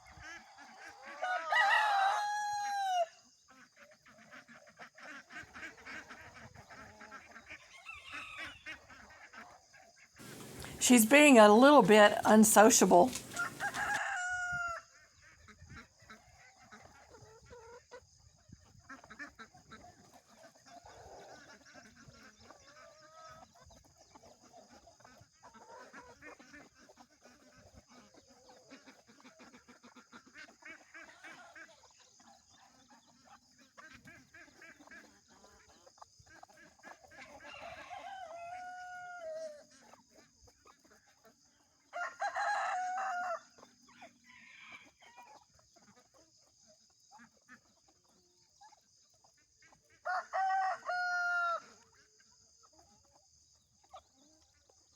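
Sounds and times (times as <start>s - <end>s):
rooster crowing: 1.2s - 3.2s, 13.0s - 14.8s, 37.5s - 39.5s, 41.9s - 43.5s, 50.0s - 51.6s
bird calls: 10.2s - 10.8s, 13.0s - 14.0s
hen clucking: 10.2s - 14.4s.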